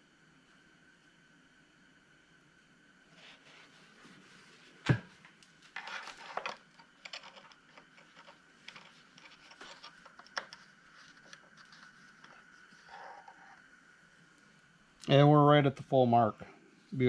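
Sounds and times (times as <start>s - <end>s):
scraping and rustling: 3.1s - 13.7s.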